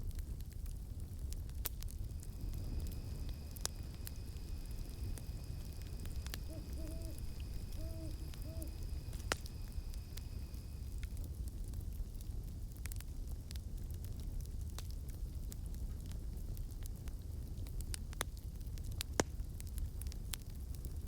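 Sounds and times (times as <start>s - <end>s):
campfire crackling and popping: 0.0s - 21.0s
high insect tone: 2.0s - 11.1s
owl hooting: 2.2s - 10.8s.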